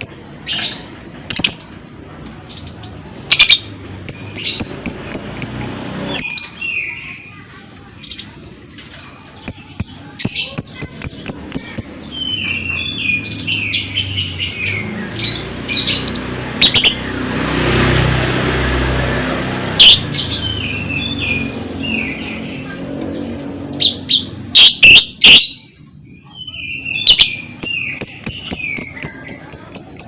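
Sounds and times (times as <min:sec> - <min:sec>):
lovebirds chirping: 0:02.5 - 0:08.4, 0:09.2 - 0:17.1, 0:19.8 - 0:30.0.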